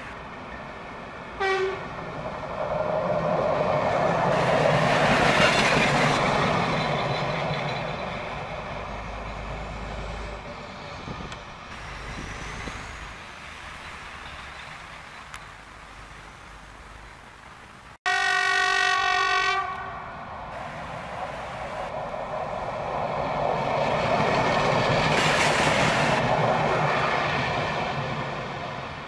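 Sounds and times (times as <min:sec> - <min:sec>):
train passing rumble: 0:00.0 - 0:29.0
train horn toot: 0:01.4 - 0:01.9, 0:18.1 - 0:20.0.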